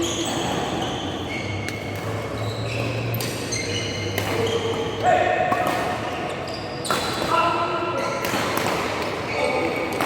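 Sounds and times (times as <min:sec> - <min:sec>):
shoes squeaking on court floor: 0:00.0 - 0:10.0
racket hitting shuttlecock: 0:01.6 - 0:06.1, 0:08.2 - 0:09.2.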